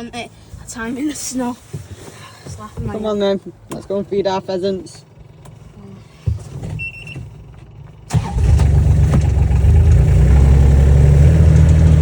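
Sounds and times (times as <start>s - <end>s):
vehicle engine starting and running: 6.6s - 12.0s.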